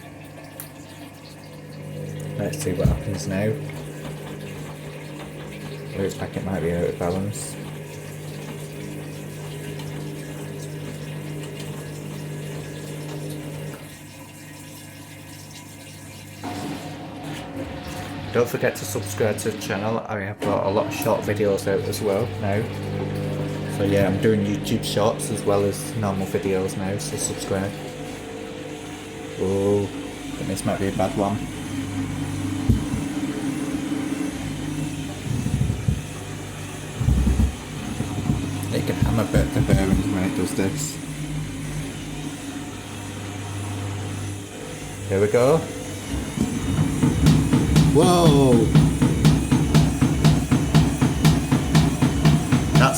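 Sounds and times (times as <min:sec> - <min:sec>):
washing machine pump humming: 0:00.0 - 0:52.9
water running: 0:00.0 - 0:52.9
washing machine knock: 0:02.4 - 0:08.8, 0:32.6 - 0:33.3, 0:34.8 - 0:36.2, 0:36.8 - 0:40.4, 0:46.1 - 0:52.9
heavy low thumping from drum: 0:46.4 - 0:52.9.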